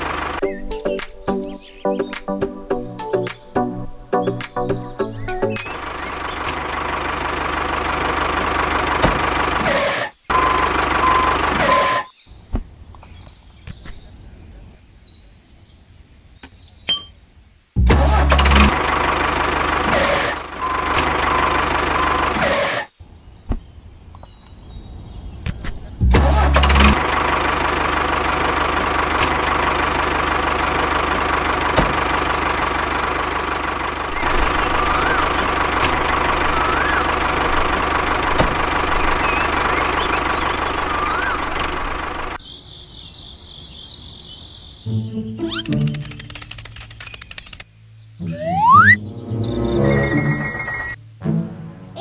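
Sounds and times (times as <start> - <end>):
tractor engine chugging: 0.0 - 1.8, 3.9 - 11.9, 18.0 - 22.5, 26.0 - 42.4
light clicks: 45.6 - 47.7.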